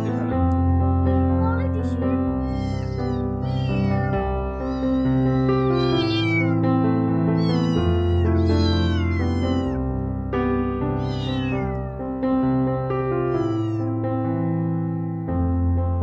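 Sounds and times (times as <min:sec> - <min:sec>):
piano music: 0:00.0 - 0:16.0
cat meowing: 0:01.4 - 0:06.6, 0:07.4 - 0:10.0, 0:10.9 - 0:12.0, 0:13.1 - 0:13.9.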